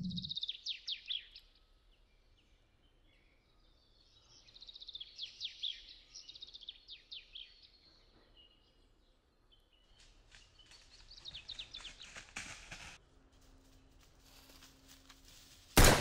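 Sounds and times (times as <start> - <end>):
songbird singing: 0.0 - 12.5.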